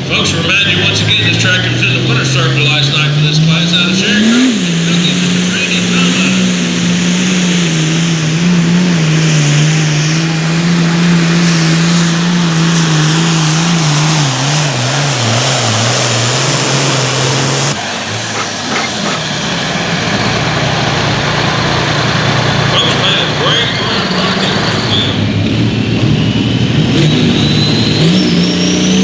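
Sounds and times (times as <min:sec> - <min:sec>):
dull steady noise: 0:00.0 - 0:26.6
pulling vehicle engine under load: 0:00.0 - 0:29.0.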